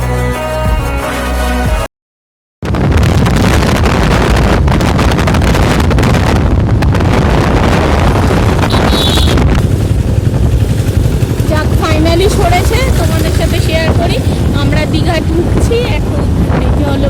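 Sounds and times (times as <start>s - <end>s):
wind buffeting microphone: 2.6s - 17.0s.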